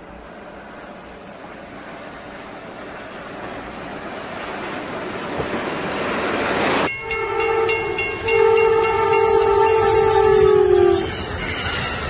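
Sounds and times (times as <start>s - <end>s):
snowplough rushing through snow: 0.0s - 6.9s
crossing bell ringing rapidly: 6.9s - 10.6s
train air horn blasts: 6.9s - 11.9s.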